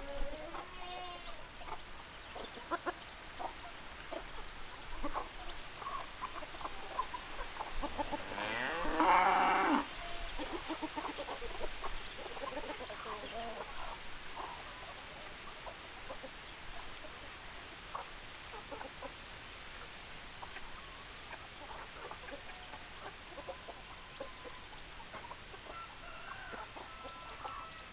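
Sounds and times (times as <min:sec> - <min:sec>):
chickens clucking: 0:00.0 - 0:27.9
loud drawn-out chicken call: 0:25.7 - 0:27.9.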